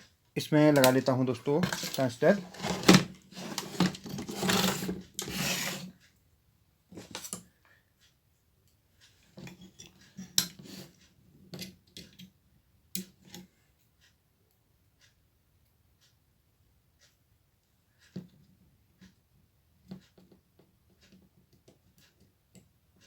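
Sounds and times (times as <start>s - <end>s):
metal parts scraping: 1.6s - 5.9s.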